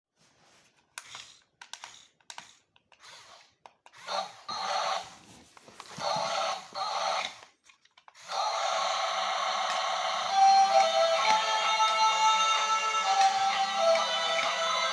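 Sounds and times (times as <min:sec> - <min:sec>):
small electric motors whirring: 0:05.9 - 0:14.9.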